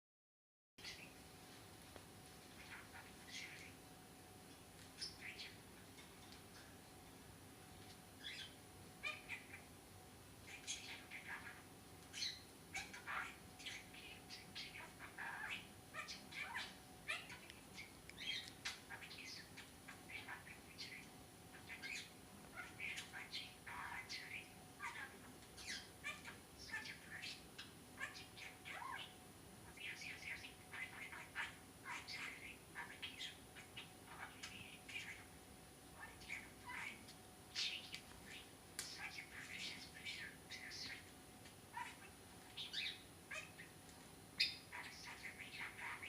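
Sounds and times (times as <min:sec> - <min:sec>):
low room hiss: 0:00.8 - 0:46.0
budgerigar chirp: 0:08.2 - 0:09.7, 0:10.5 - 0:35.3, 0:36.0 - 0:41.1, 0:41.7 - 0:43.8, 0:44.4 - 0:46.0.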